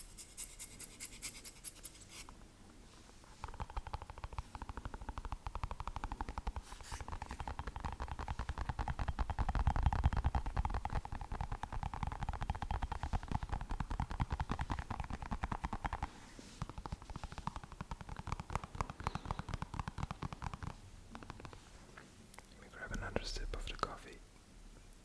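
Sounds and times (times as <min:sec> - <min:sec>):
fingernail tapping on object: 0:03.4 - 0:21.6.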